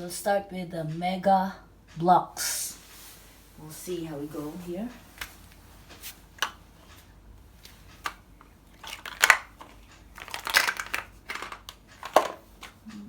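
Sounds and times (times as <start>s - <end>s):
plastic blocks clicking and clattering: 8.0s - 12.8s.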